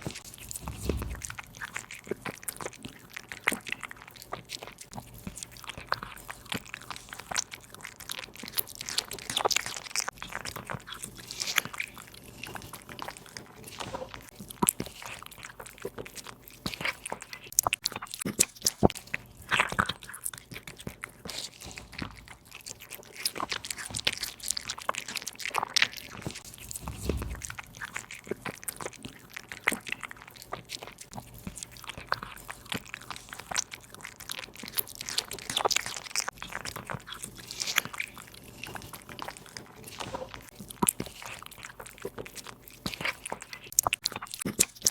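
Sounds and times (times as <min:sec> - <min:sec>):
cat chewing bone crunches: 0:00.0 - 0:44.9
low thump: 0:00.5 - 0:01.5, 0:26.6 - 0:27.7.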